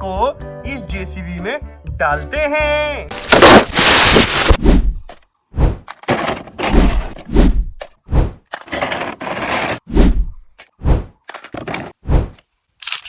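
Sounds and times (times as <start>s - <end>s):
plastic rubbing: 3.1s - 4.6s.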